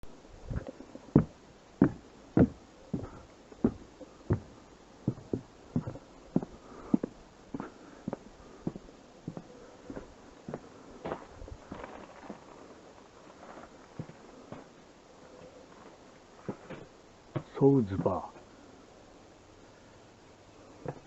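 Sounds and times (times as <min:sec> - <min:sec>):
footsteps with hollow knock: 0:00.4 - 0:12.4, 0:13.9 - 0:14.7, 0:16.4 - 0:18.2.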